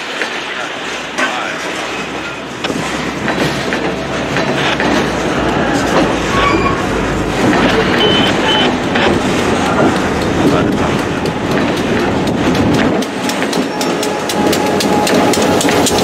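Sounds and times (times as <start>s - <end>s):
freight train rolling past: 0.0s - 16.0s
wheels clicking over rail joints: 0.0s - 16.0s
wheel squeals: 5.7s - 8.9s, 13.5s - 16.0s.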